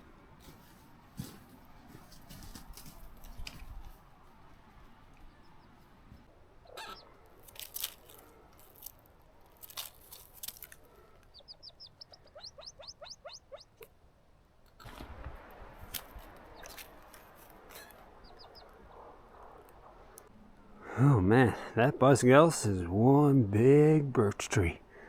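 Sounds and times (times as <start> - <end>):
footsteps on forest floor: 7.4 - 11.0, 15.8 - 18.0
songbird trill: 11.3 - 13.9, 17.7 - 18.8.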